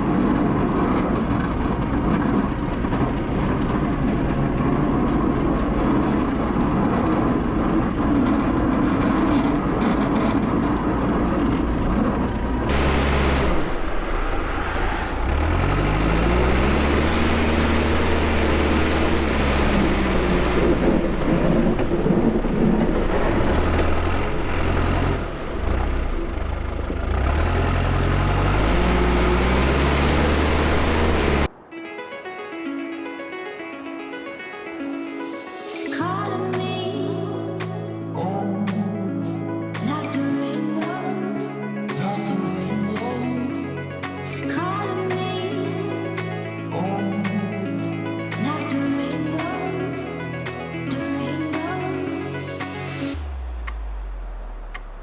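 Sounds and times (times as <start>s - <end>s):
diesel engine revving: 9.4s - 31.5s.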